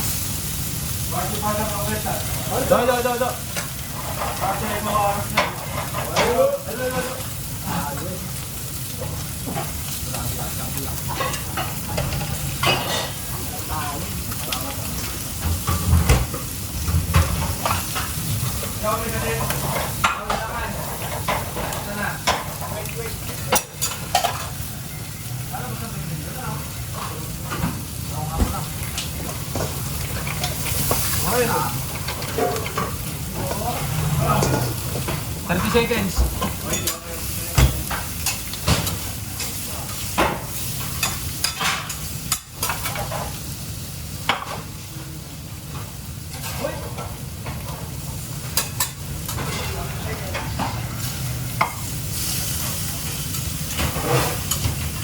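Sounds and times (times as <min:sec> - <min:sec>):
food sizzling in a pan: 0:00.0 - 0:55.0
utensils and pans clattering: 0:01.1 - 0:43.5, 0:44.2 - 0:44.7, 0:45.7 - 0:55.0.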